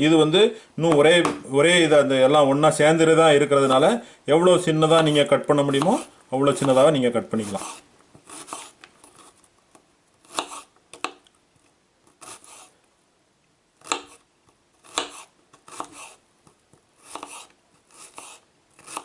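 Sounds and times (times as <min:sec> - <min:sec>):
knife chopping an onion: 0:05.0 - 0:08.8, 0:10.2 - 0:11.2, 0:13.8 - 0:14.2, 0:14.8 - 0:16.2, 0:17.0 - 0:19.0.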